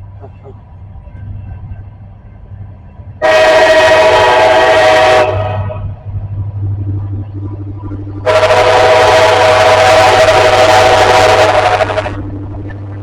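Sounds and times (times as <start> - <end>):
low rumble of train: 0.0 - 13.0
locomotive air horn blast: 3.2 - 6.0, 8.2 - 12.2.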